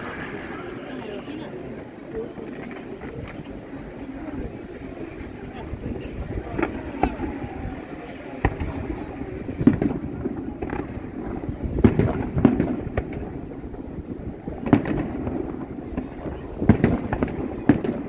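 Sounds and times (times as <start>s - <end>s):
fireworks bangs and cracks: 0.0s - 4.0s.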